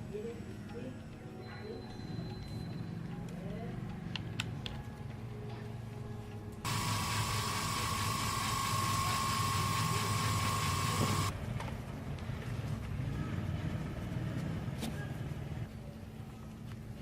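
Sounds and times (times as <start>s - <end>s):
power tool whining: 6.7s - 11.3s.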